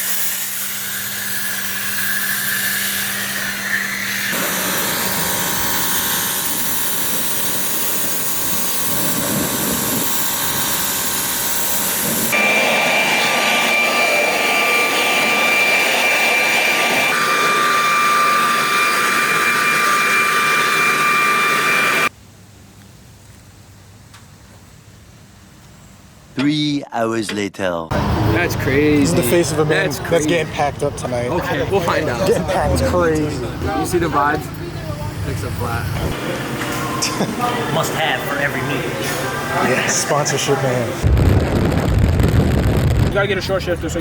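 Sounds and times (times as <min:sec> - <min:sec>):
motor whine: 0:00.4 - 0:22.1.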